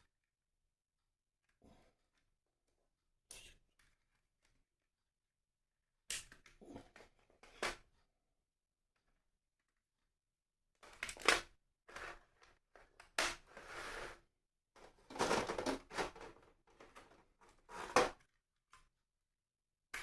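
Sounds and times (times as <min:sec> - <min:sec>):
plastic rustling and crinkling: 0:14.8 - 0:18.0.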